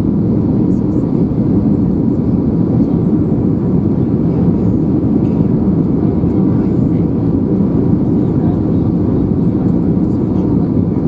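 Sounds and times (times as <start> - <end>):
aircraft cabin low rumble: 0.0 - 11.0.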